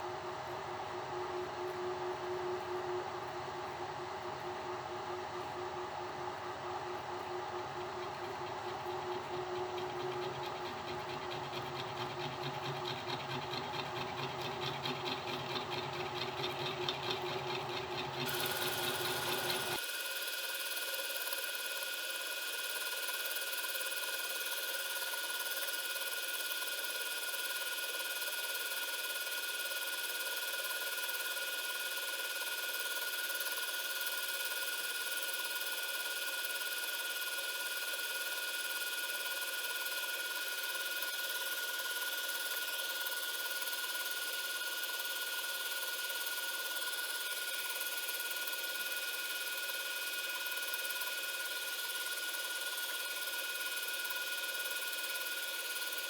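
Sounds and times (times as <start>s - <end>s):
milling machine spindle whine: 7.4s - 19.8s.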